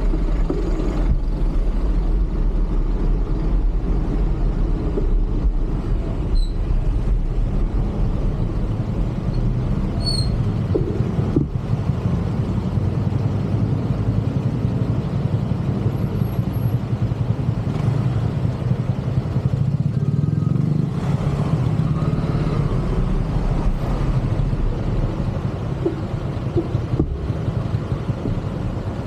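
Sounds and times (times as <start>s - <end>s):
road and traffic rumble: 0.0s - 29.0s.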